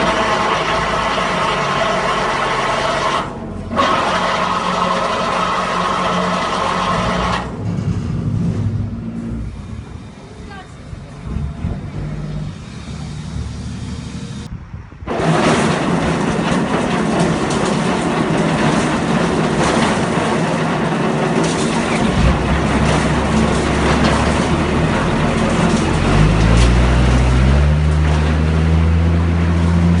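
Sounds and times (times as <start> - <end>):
concrete mixer drum turning: 0.0 - 9.4, 15.1 - 30.0
dense rattling: 15.1 - 28.8.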